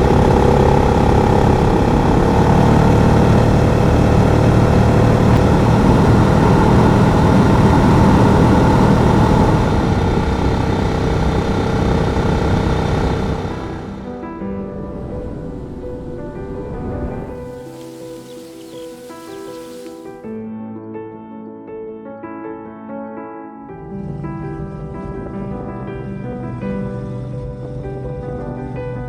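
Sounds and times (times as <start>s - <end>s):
motorcycle engine cruising: 0.0s - 14.2s, 15.0s - 20.2s
wind rush over microphone: 0.0s - 19.8s.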